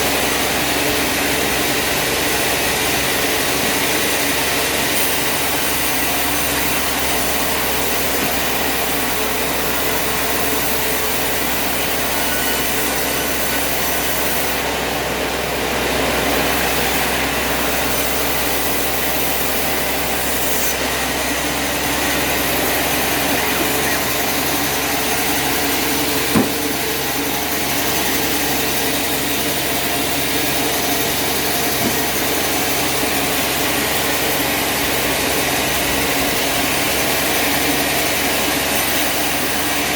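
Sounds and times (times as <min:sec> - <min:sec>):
sawmill machinery running: 0:00.0 - 0:39.9
sharp knock: 0:26.3 - 0:26.6.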